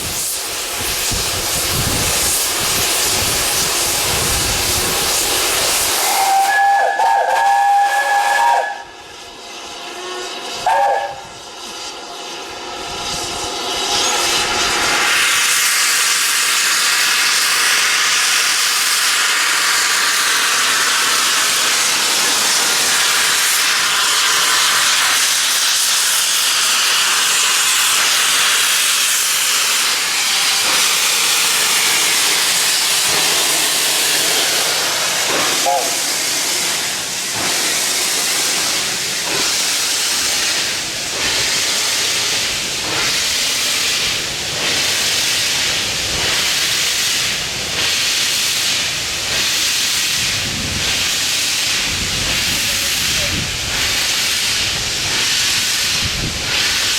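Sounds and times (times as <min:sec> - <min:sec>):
steam locomotive hissing: 0:00.0 - 0:56.9
steam whistle: 0:06.0 - 0:09.0, 0:10.6 - 0:11.4, 0:35.6 - 0:36.1.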